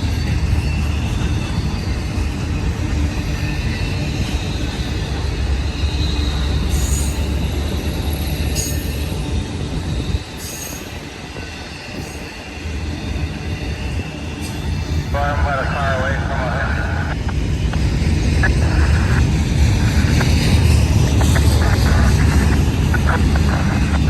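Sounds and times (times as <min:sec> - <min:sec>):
high wheel squeal: 0:00.0 - 0:15.1
train wheels rumbling on rails: 0:00.0 - 0:24.0.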